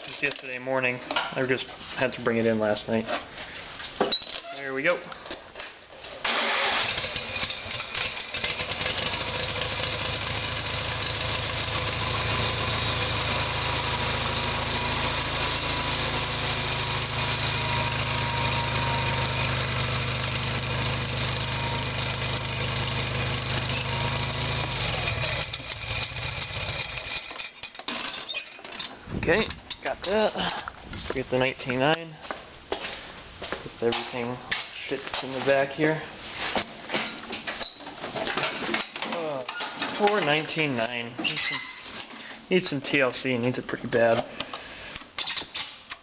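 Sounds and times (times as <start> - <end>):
garden tractor engine running: 6.2 - 28.3.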